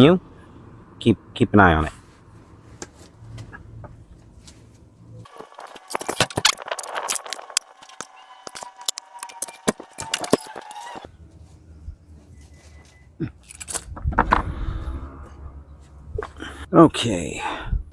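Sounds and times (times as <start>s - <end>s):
metal hand tools clinking: 13.4s - 14.0s.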